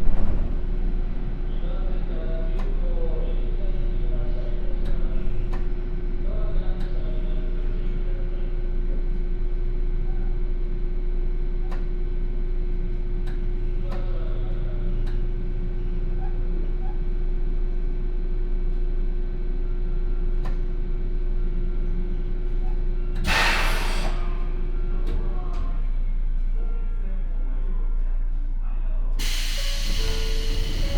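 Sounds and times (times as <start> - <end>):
train electrical hum: 0.0 - 30.9
air hiss: 23.2 - 24.3, 29.2 - 30.9.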